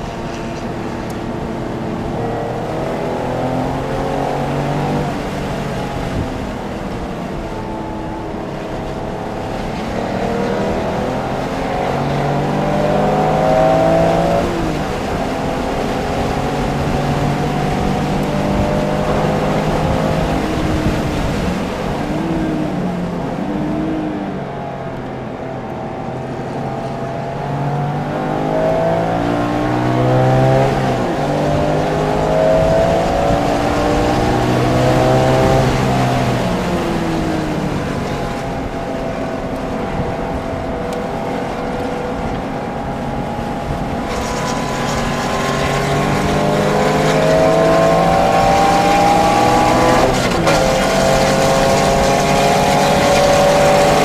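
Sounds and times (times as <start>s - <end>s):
sports car engine accelerating: 0.0s - 54.0s
tyre and wind noise: 0.0s - 54.0s.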